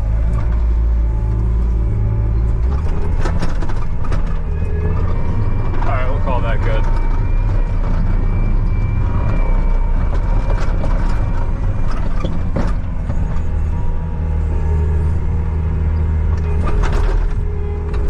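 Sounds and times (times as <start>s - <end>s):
knocks and clanks: 2.6s - 13.8s, 16.4s - 18.0s.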